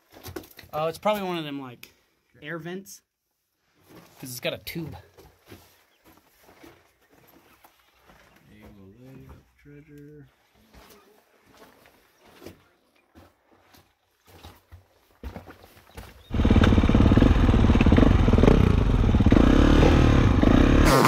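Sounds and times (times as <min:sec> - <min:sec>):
dirt bike engine revving: 0:16.3 - 0:21.0.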